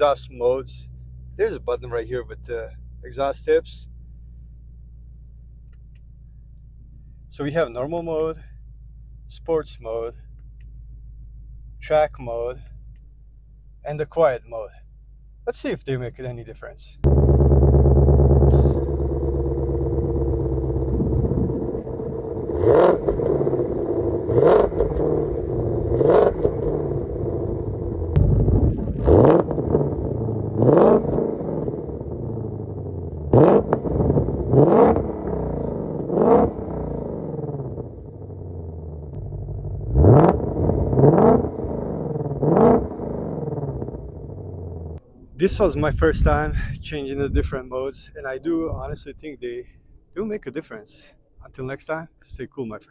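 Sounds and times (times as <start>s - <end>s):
car engine idling and revving: 0.0s - 14.2s, 17.0s - 45.1s.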